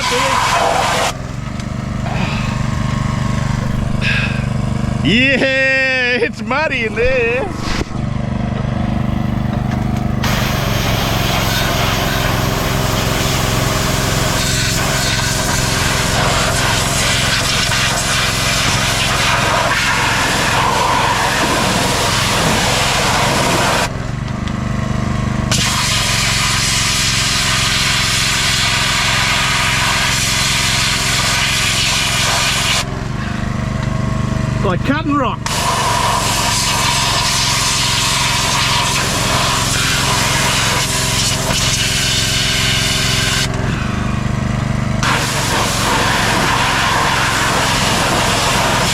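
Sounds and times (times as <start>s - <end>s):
spray jet hissing: 0.0s - 4.6s, 10.2s - 23.8s
small petrol engine running: 0.0s - 48.9s.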